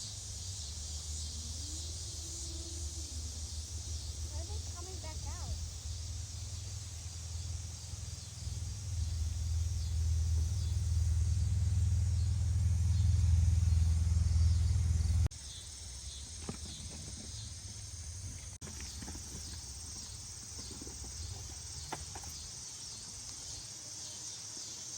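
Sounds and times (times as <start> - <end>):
crickets chirping: 0.0 - 24.9
low rumble: 0.2 - 15.3.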